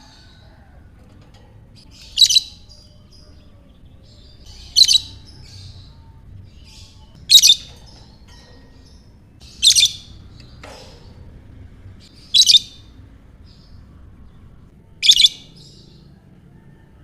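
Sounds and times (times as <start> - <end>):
bird shrill chirps: 1.8 - 10.2, 12.2 - 12.9, 15.0 - 16.0.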